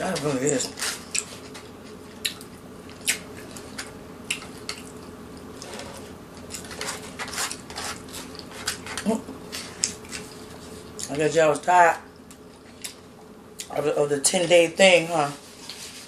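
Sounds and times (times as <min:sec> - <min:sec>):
steady low hum: 0:00.0 - 0:16.0
chewing and lip-smacking: 0:02.1 - 0:05.2.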